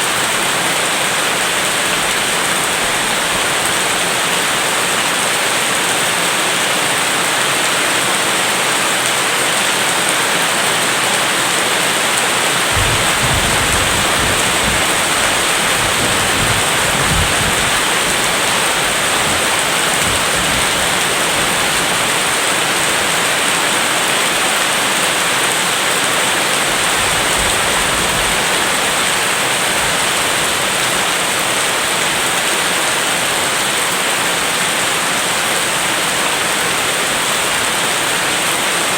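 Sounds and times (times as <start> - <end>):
heavy rain: 0.0 - 38.9
thunder rumbling: 12.4 - 22.8.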